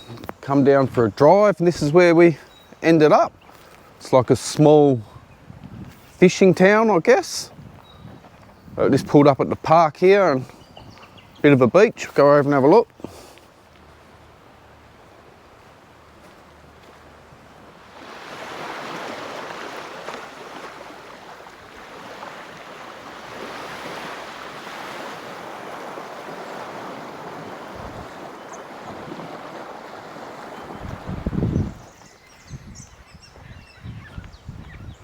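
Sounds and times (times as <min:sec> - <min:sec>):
wind buffeting microphone: 0:05.0 - 0:06.4, 0:07.4 - 0:09.7, 0:10.4 - 0:11.4, 0:18.0 - 0:35.0
small waves washing onto beach: 0:05.9 - 0:32.2.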